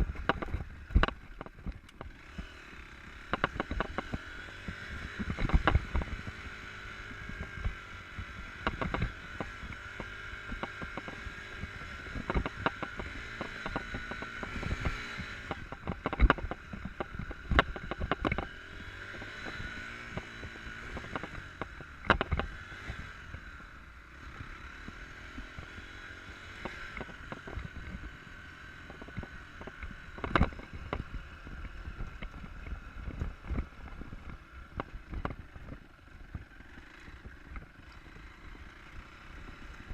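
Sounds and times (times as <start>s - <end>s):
sharp knocks and clatter: 0.0s - 2.2s, 3.3s - 4.2s, 8.6s - 18.5s, 19.1s - 22.7s, 28.8s - 35.5s
motorcycle engine revving: 0.0s - 39.9s.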